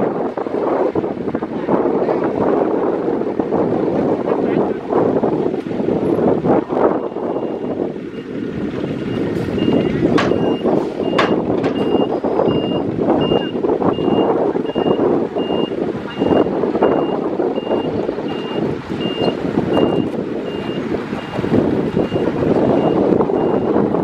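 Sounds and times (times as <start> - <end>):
heavy machine engine running: 0.0 - 24.0
reversing alarm beeping: 6.9 - 8.2, 9.0 - 23.8.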